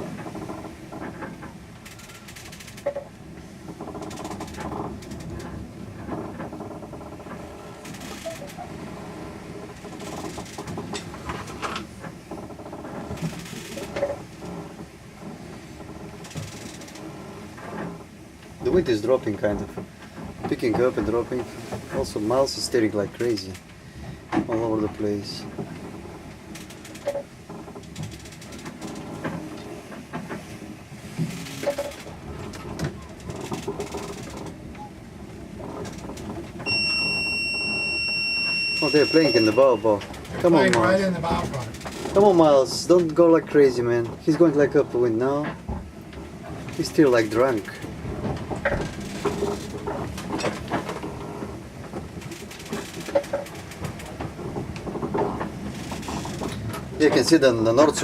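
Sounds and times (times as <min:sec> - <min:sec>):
mechanical rattle and creak: 0:00.0 - 0:58.0
water noise: 0:00.0 - 0:58.0
strong wind: 0:27.4 - 0:58.0.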